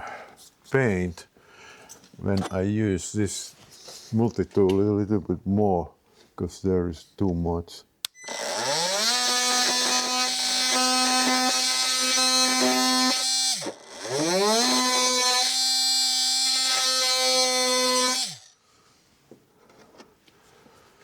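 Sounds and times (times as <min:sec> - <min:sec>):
electric multi-tool buzzing: 0:08.1 - 0:18.6.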